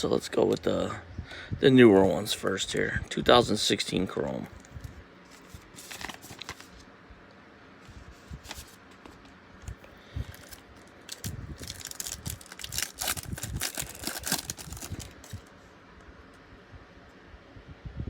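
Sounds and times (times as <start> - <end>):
wrapper tearing and crinkling: 5.8 - 6.7, 10.2 - 15.5.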